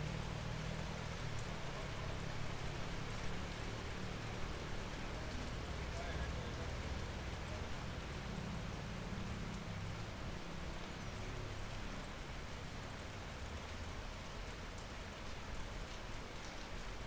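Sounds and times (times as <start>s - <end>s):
steady rain: 0.0s - 17.0s
raindrop ticks: 13.4s - 17.0s.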